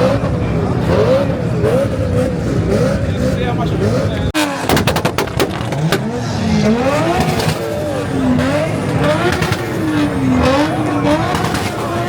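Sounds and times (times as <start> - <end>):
car engine revving: 0.0 - 12.0
sharp engine pops: 4.6 - 6.2.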